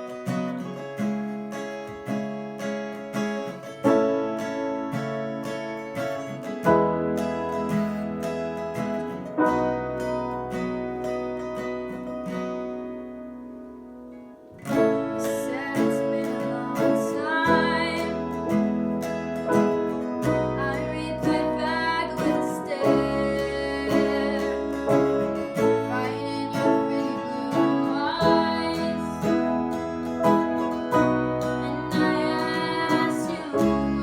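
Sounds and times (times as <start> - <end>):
ringing guitar chord: 3.8 - 34.0
person singing: 14.8 - 18.8, 20.2 - 34.0.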